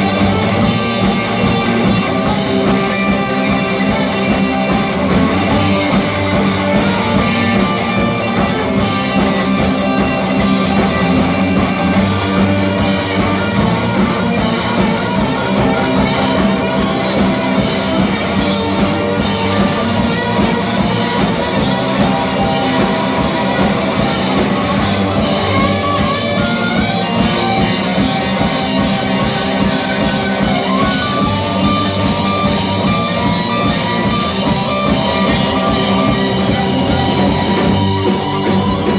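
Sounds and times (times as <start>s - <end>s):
drum kit: 0.0s - 38.9s
electric guitar: 0.0s - 38.9s
rock band playing live: 0.0s - 38.9s.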